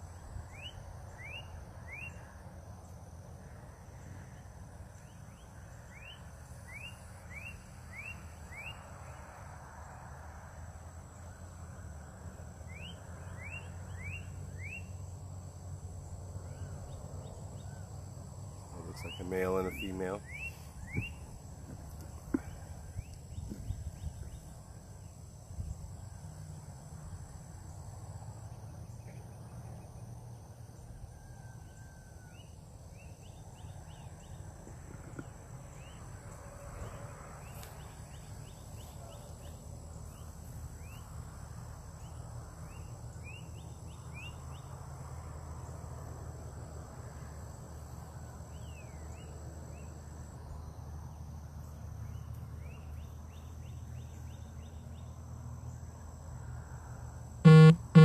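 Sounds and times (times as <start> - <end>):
insects droning: 0.0 - 58.0
bird chirps: 57.5 - 58.0.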